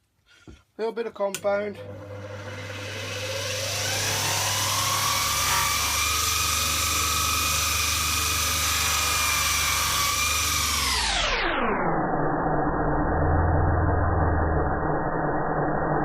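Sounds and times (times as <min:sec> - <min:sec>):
buffing machine whine: 0:01.7 - 0:11.5.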